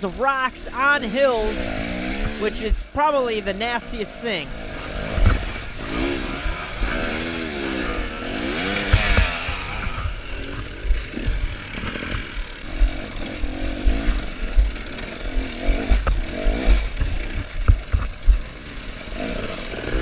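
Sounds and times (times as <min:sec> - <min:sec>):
dirt bike engine revving: 0:00.0 - 0:20.0
bike knocking on rocks: 0:08.8 - 0:18.5.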